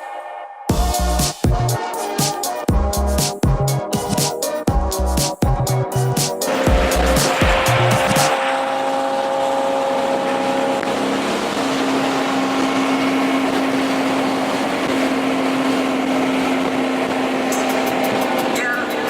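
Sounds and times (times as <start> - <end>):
road noise: 6.0 - 19.0
car engine droning: 6.4 - 19.0.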